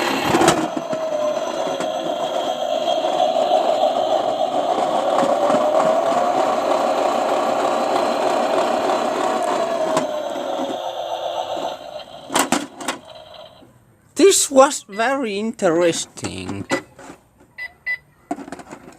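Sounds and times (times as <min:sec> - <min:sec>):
small electric motor whining: 0:00.0 - 0:13.6.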